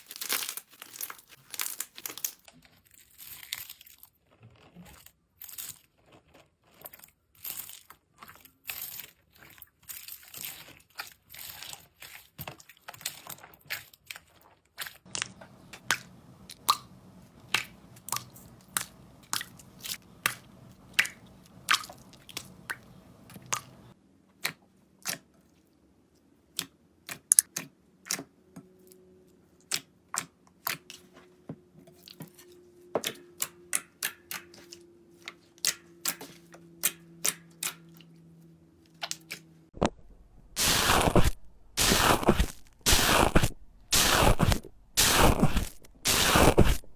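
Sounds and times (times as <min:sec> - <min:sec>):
slime crackling and popping: 0:39.0 - 0:46.9.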